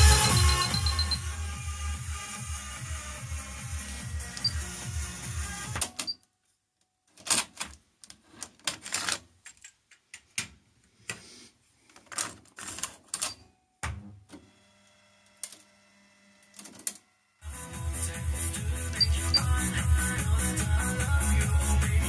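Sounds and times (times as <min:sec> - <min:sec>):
music: 0:00.0 - 0:05.8, 0:17.4 - 0:22.0.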